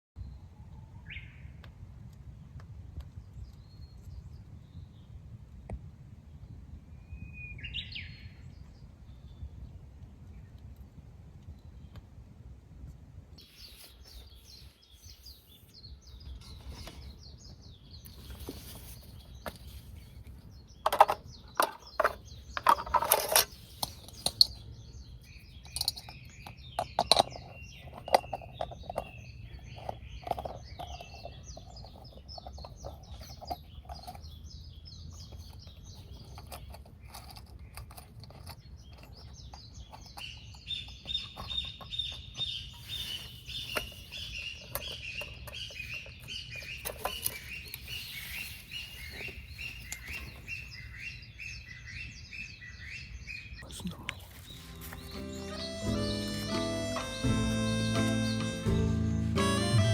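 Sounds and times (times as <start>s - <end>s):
small birds chirping: 13.4s - 59.9s.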